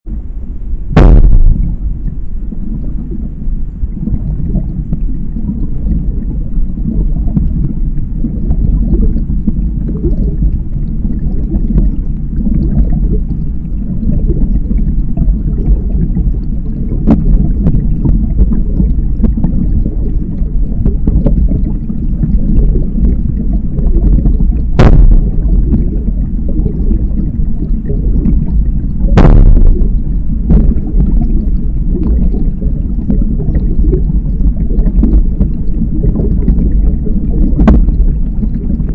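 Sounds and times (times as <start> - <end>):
sharp knocks: 1.0 - 1.7, 24.8 - 25.2, 29.2 - 29.8
water moving under paddle: 1.0 - 38.9
wind buffeting microphone: 17.2 - 38.9.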